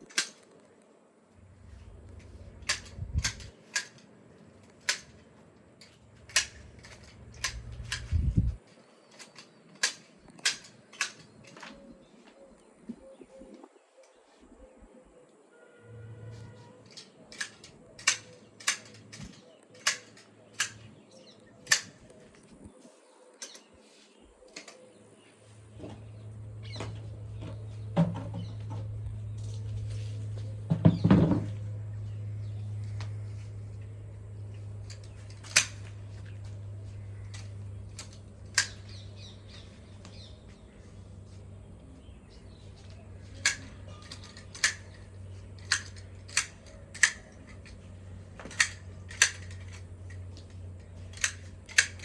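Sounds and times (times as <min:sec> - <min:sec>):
hand shears snipping branches: 0:00.0 - 0:00.5, 0:02.1 - 0:08.5, 0:09.1 - 0:11.8, 0:16.9 - 0:22.2, 0:34.8 - 0:40.3, 0:42.8 - 0:52.0
steady low hum: 0:00.0 - 0:13.8, 0:24.2 - 0:52.0.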